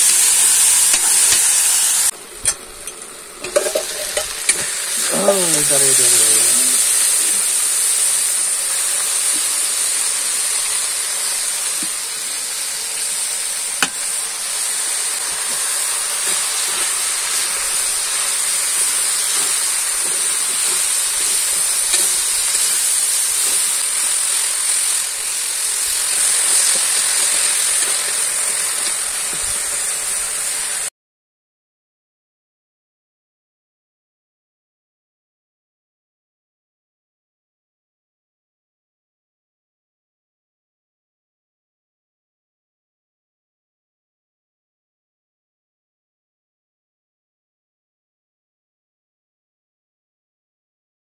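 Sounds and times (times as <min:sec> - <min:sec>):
food sizzling in oil: 0:00.0 - 0:30.9
ladle stirring: 0:02.8 - 0:04.7.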